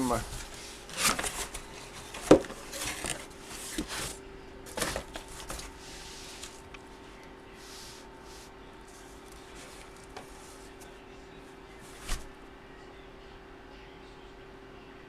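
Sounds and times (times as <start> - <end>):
cardboard rustling: 0.0 - 11.0, 11.8 - 12.4
knocks on cardboard box: 2.2 - 2.6.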